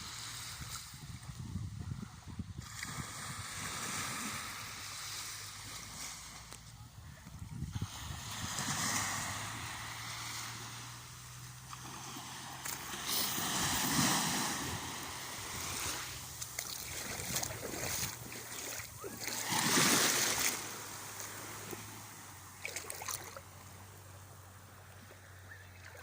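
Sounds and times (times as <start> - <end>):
wind on microphone: 0.0 - 4.9, 7.0 - 9.9, 13.1 - 20.8
small waves sloshing: 2.6 - 26.0.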